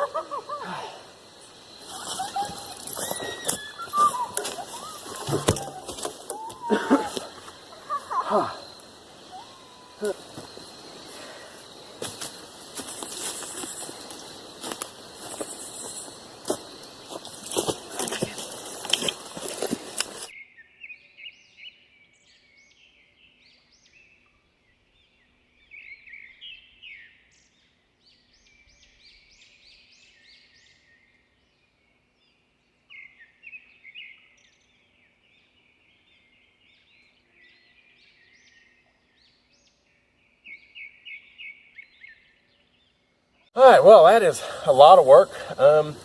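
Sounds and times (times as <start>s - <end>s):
birds chirping: 0.0s - 20.4s, 32.9s - 46.0s.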